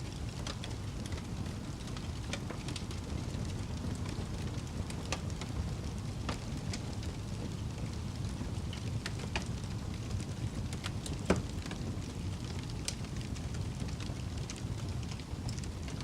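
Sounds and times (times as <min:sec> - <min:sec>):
fire crackles and pops: 0:00.0 - 0:16.0
wood fire rumbling: 0:00.0 - 0:16.0.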